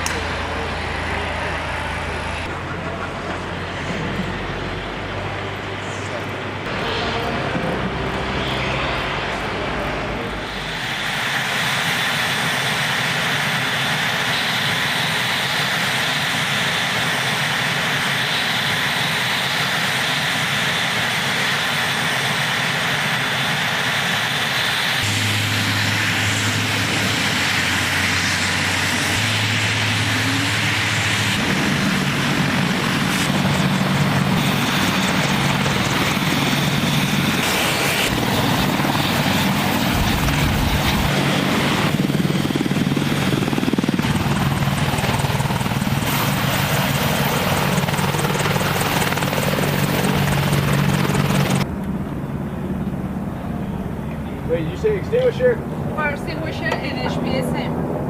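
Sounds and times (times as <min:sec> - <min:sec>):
aircraft turbine engines whining: 0:00.0 - 0:58.0.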